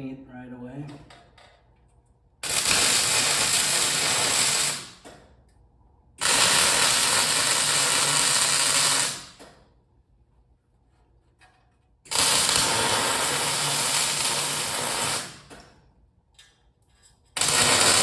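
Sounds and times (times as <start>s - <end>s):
arc welding crackling: 2.4s - 5.1s, 6.2s - 9.5s, 12.1s - 15.6s, 17.4s - 18.0s.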